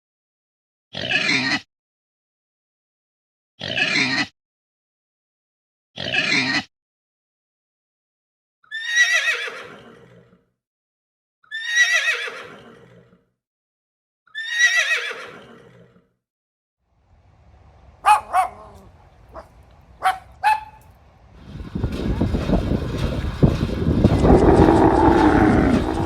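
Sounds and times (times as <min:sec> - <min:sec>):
horse whinnying: 0:08.7 - 0:10.3, 0:11.5 - 0:13.1, 0:14.3 - 0:16.0, 0:24.2 - 0:26.0.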